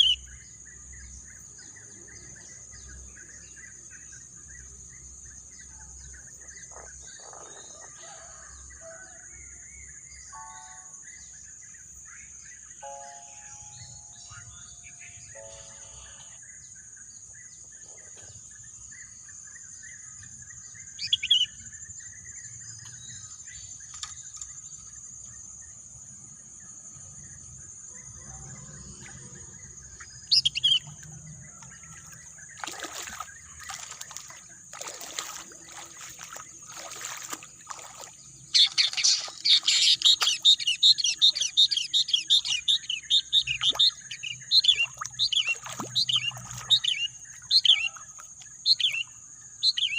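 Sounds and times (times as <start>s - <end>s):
wild birds calling: 0.0s - 0.4s, 6.1s - 8.5s, 12.2s - 16.8s, 27.9s - 49.9s
rapid chattering bird song: 0.0s - 8.4s, 13.4s - 25.8s, 26.7s - 49.9s.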